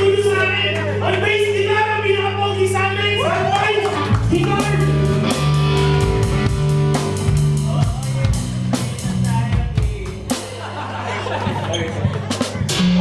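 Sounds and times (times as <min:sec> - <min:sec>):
live rock band playing: 0:03.8 - 0:10.8, 0:12.2 - 0:13.0.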